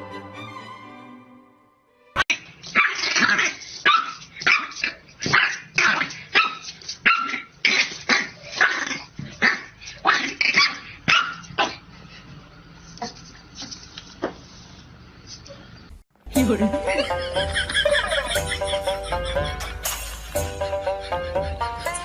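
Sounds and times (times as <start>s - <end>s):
dog barking: 2.7s - 7.5s, 8.1s - 11.8s.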